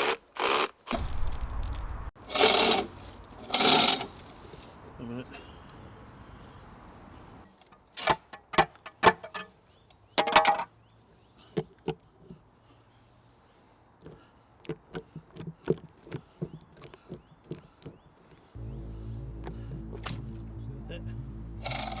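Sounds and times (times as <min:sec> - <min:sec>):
chain hoist clicking: 0:00.0 - 0:04.7, 0:21.6 - 0:22.0.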